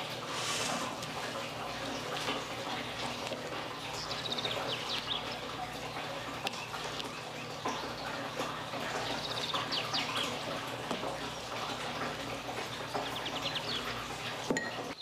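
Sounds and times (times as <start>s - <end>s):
bird chirping: 3.9s - 5.4s.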